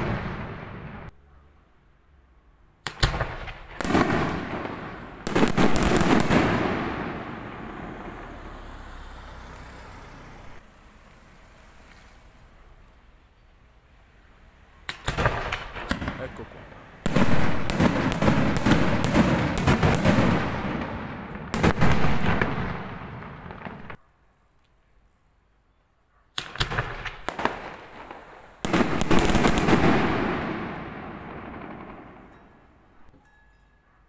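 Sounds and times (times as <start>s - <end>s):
fireworks bangs with rolling echo: 0.0s - 1.1s, 2.8s - 8.9s, 14.8s - 24.1s, 26.3s - 33.1s.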